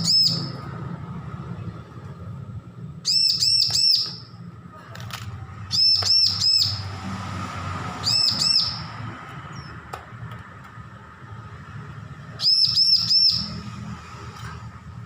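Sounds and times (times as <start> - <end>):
bird chirping: 0.0 - 0.7, 3.0 - 4.4, 5.6 - 7.0, 8.0 - 9.8, 12.3 - 13.8.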